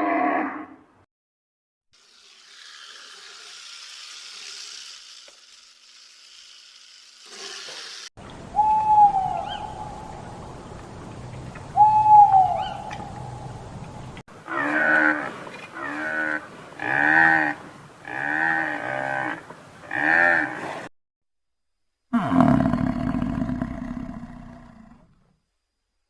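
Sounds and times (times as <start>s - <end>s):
background hiss: 2.0s - 11.9s
animal long calls: 14.4s - 20.7s, 22.1s - 25.2s.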